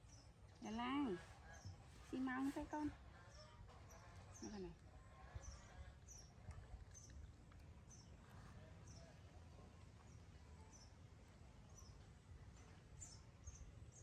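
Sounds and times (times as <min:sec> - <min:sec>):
bird chirping: 0:00.0 - 0:14.0.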